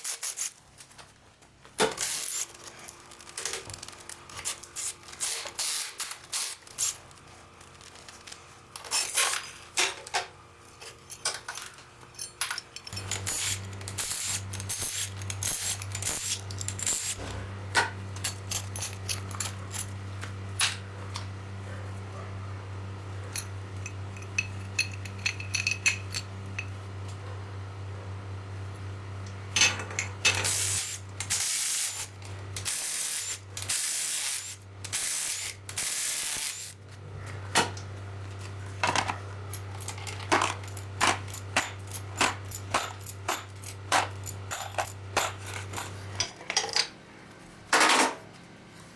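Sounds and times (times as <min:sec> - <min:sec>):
tools and metal parts clinking: 0:01.8 - 0:07.0, 0:07.9 - 0:20.0, 0:23.3 - 0:26.8, 0:38.4 - 0:47.0.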